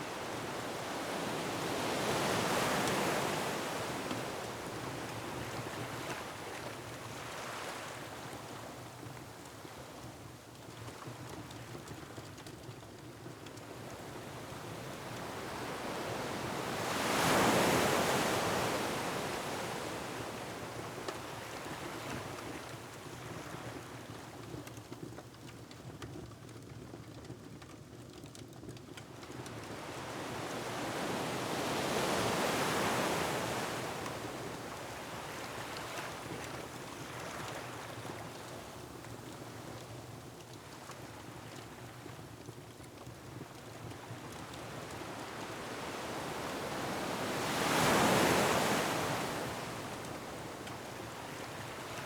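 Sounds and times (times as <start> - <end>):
ocean waves breaking on rocks: 14.6 - 20.7, 29.9 - 36.4, 44.3 - 52.0.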